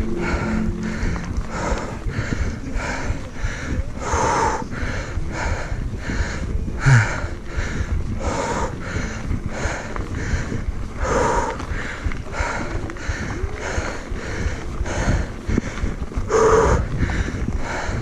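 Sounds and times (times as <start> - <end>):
person breathing hard: 0.0 - 18.0
wind and riding noise: 0.0 - 18.0.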